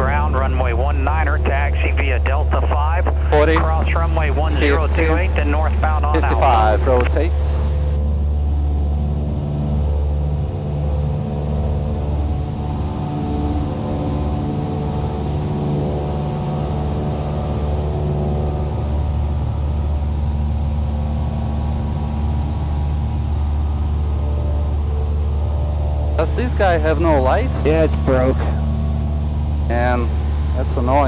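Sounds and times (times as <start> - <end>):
propeller plane engine drone: 0.0 - 31.0.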